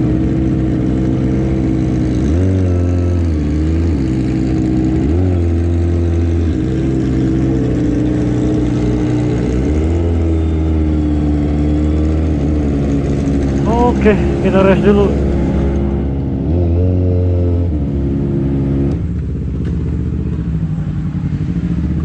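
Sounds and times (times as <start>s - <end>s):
motorcycle engine idling with throttle blips: 19.0s - 22.0s.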